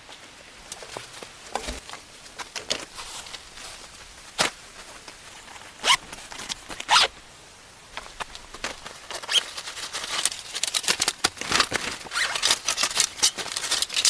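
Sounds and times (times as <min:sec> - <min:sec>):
gear being handled: 0:02.6 - 0:07.1, 0:08.0 - 0:14.0.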